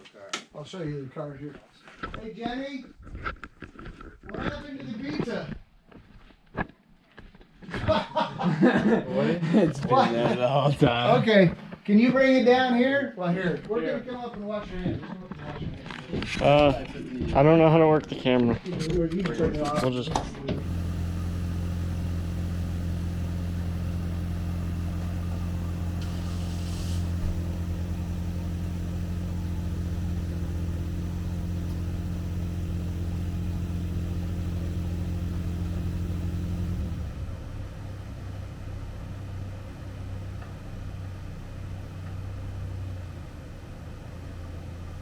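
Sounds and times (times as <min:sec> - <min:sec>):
machine humming: 0:20.5 - 0:38.1
brief hiss: 0:25.7 - 0:27.6.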